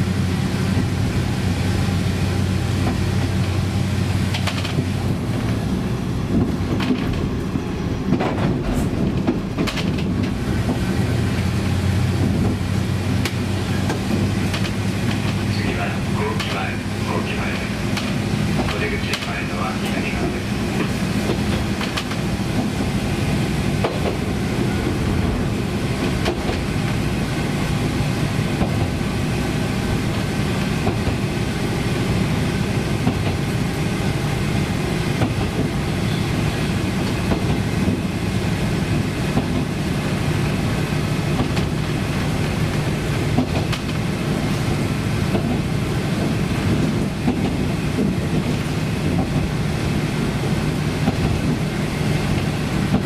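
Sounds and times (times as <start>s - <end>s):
diesel engine drone: 0.0s - 53.0s
wheels humming on rails: 0.0s - 53.0s
clicks at rail joints: 4.3s - 4.9s, 6.3s - 7.3s, 8.1s - 10.8s, 13.2s - 16.6s, 17.9s - 22.8s, 26.0s - 26.7s, 37.0s - 38.0s, 41.4s - 41.8s, 42.4s - 44.0s, 45.3s - 49.5s.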